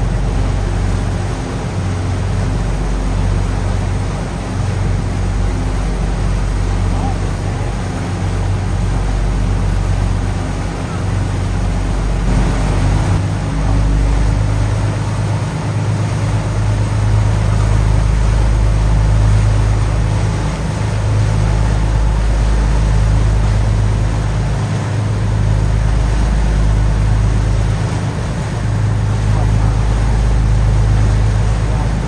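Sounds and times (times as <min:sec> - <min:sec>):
ferry engines droning: 0:00.0 - 0:32.0
rushing water noise: 0:00.0 - 0:32.0.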